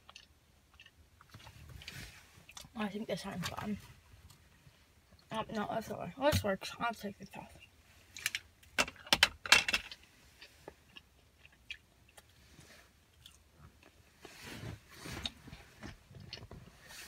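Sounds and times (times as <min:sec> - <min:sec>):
chewing food: 0:00.0 - 0:02.8, 0:10.3 - 0:14.0.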